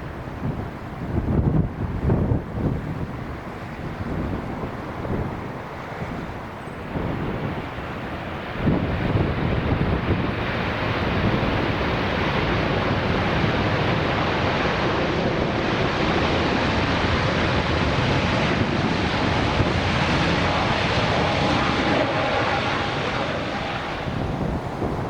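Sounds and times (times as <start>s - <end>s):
jet engines roaring: 0.0s - 25.0s
wind buffeting microphone: 0.0s - 25.0s
faint engine whine: 9.7s - 25.0s.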